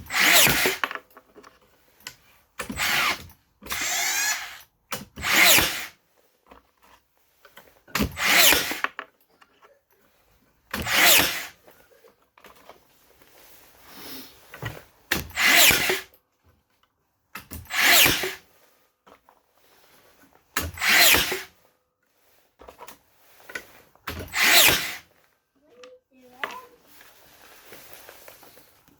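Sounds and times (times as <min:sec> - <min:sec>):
nail gun bursts: 0:00.1 - 0:00.9, 0:02.6 - 0:05.9, 0:08.0 - 0:09.0, 0:10.7 - 0:11.6, 0:15.1 - 0:16.1, 0:17.4 - 0:18.4, 0:20.6 - 0:21.5, 0:24.1 - 0:25.1.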